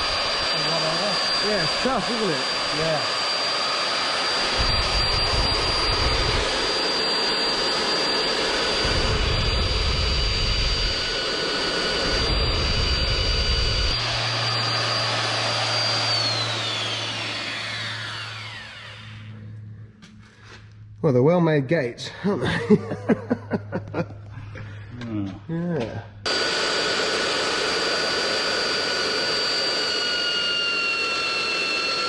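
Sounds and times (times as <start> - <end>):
electric drill boring into steel: 0.0 - 19.7, 26.3 - 32.0.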